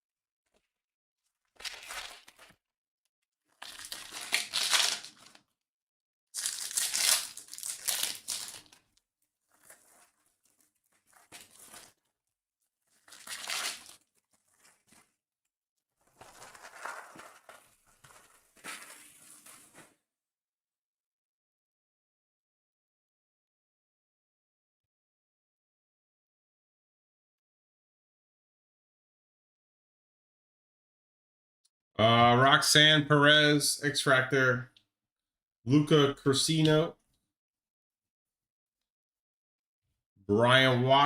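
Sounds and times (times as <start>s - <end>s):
wrapper tearing and crinkling: 1.6s - 2.6s, 3.5s - 5.5s, 6.4s - 12.1s, 12.9s - 15.2s, 16.1s - 20.0s.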